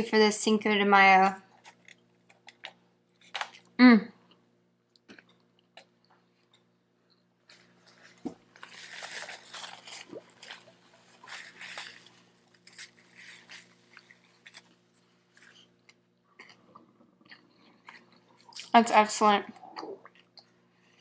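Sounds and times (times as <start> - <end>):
chewing and biting taco: 4.9 - 18.7.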